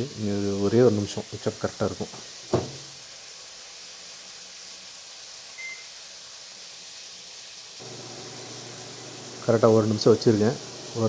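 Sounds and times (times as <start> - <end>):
low hiss: 0.0 - 11.0
microwave keypad beep: 5.6 - 5.9.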